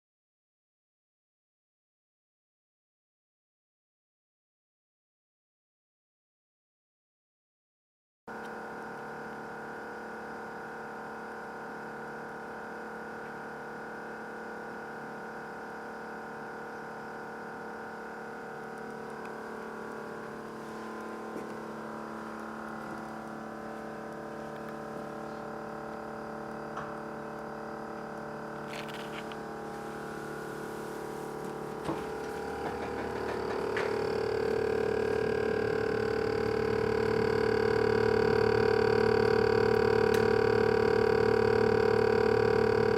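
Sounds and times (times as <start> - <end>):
refrigerator humming whine: 8.3 - 42.9
refrigerator clicks: 31.8 - 34.6.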